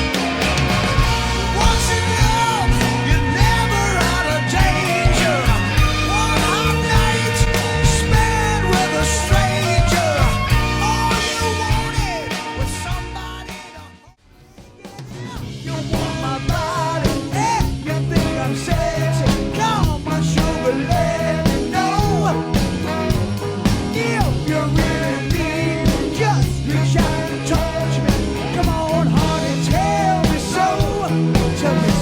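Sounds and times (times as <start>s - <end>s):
bending lead guitar line: 0.0s - 13.6s
sustained bass notes: 0.0s - 14.2s, 15.4s - 32.0s
drums steady beat: 0.0s - 32.0s.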